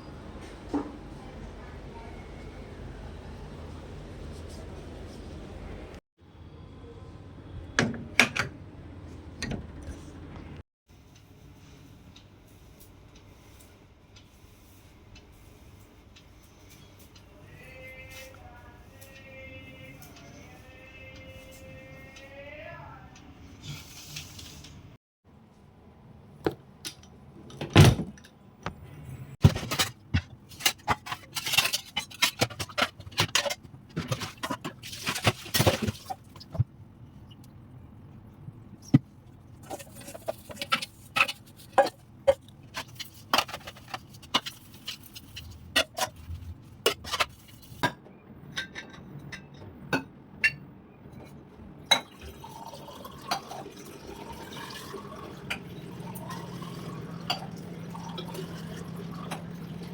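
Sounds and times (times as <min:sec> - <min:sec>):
dishes and utensils clinking: 0:39.6 - 0:51.3
running water: 0:52.2 - 0:59.9.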